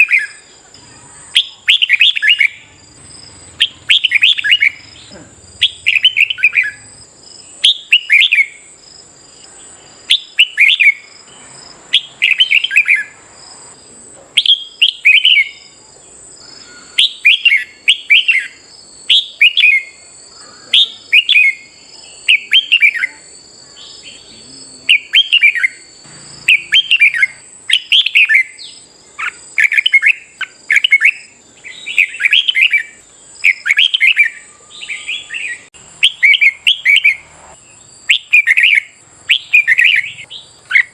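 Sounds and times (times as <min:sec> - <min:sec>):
bird song whistled notes: 0:00.0 - 0:13.8, 0:14.4 - 0:15.8, 0:16.4 - 0:40.9
thin high-pitched whine: 0:25.7 - 0:29.3.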